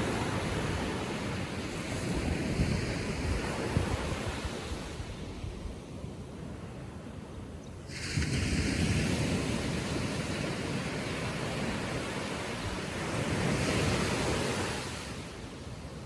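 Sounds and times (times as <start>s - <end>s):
small waves breaking on shore: 7.9s - 15.8s.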